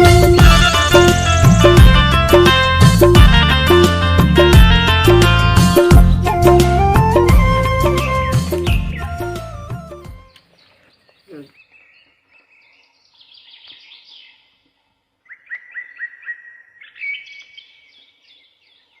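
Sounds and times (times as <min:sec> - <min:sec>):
birds chirping: 0:05.0 - 0:19.0.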